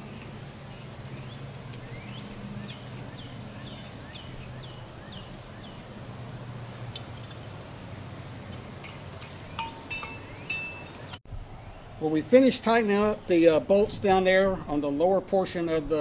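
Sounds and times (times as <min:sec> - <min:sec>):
songbird singing slurred notes: 0:00.0 - 0:06.5, 0:08.4 - 0:12.0.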